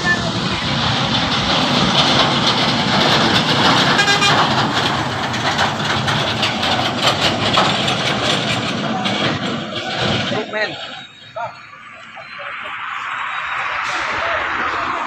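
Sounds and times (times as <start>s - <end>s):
truck engine and road noise: 0.0s - 15.0s
horn toot: 3.9s - 4.5s.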